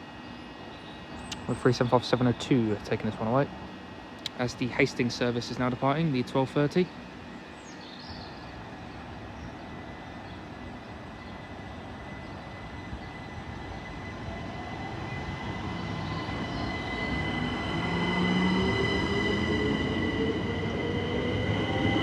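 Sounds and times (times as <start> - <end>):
electric train pulling out: 1.4 - 7.4, 10.9 - 22.0.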